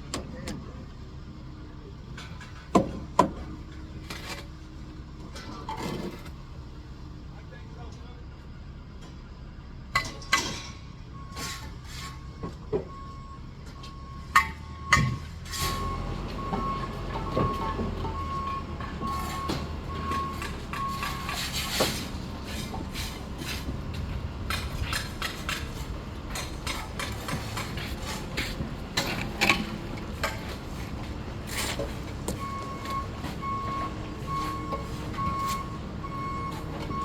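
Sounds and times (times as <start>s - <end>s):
engine low rumble: 0.0s - 37.0s
reversing alarm beeping: 12.3s - 25.6s, 29.0s - 37.0s.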